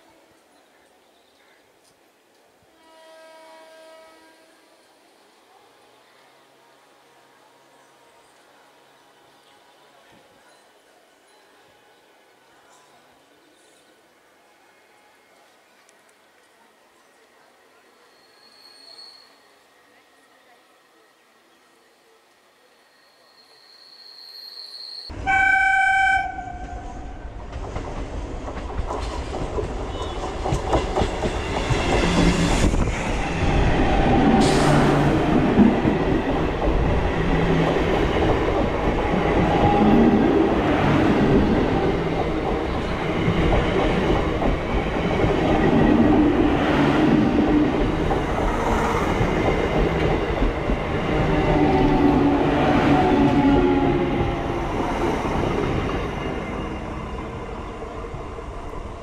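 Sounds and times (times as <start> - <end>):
train wheels rumbling on rail: 26.2 - 59.0.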